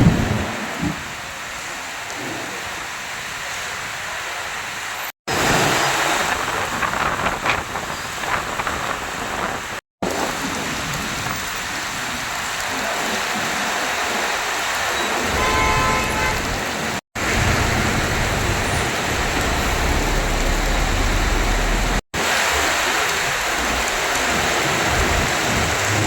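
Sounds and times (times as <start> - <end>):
heavy rain pouring: 0.0 - 26.0
vehicle horn: 15.2 - 16.7
deep low rumble: 17.2 - 22.0.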